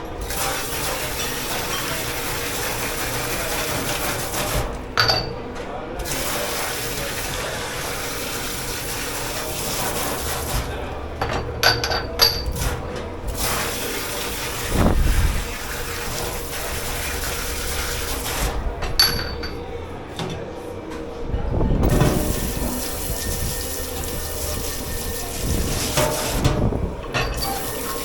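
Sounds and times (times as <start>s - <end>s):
water running in sink: 0.0s - 19.6s, 21.8s - 28.0s
dishes clinking: 4.8s - 5.8s, 10.7s - 13.1s, 18.8s - 20.4s, 25.9s - 28.0s.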